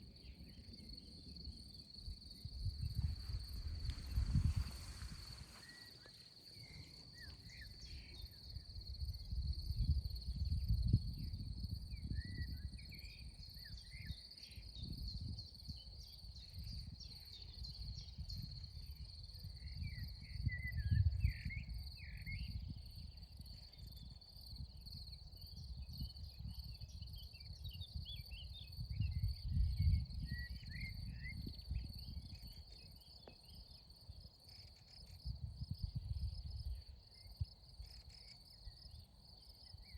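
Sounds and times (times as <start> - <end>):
high-pitched insect trill: 0.2 - 39.9.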